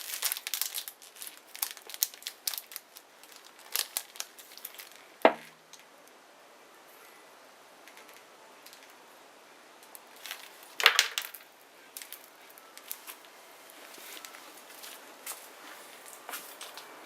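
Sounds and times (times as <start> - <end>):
bonfire crackling and popping: 0.0 - 5.9, 9.8 - 15.4.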